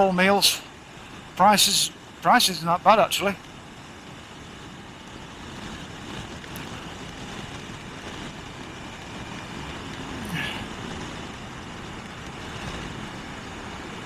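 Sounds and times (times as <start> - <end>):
road and wind noise: 0.0 - 14.0.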